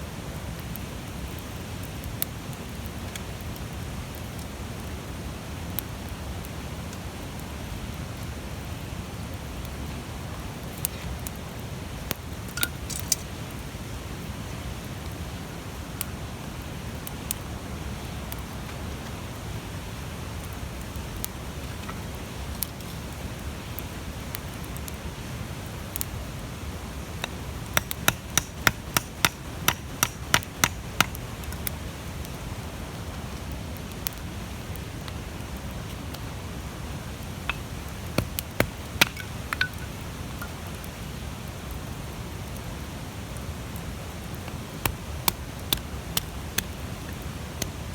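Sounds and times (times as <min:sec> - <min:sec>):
wood fire burning and crackling: 0:00.0 - 0:47.9
sharp pops from fire: 0:12.0 - 0:13.6, 0:27.1 - 0:32.4, 0:37.4 - 0:40.7, 0:44.3 - 0:47.9.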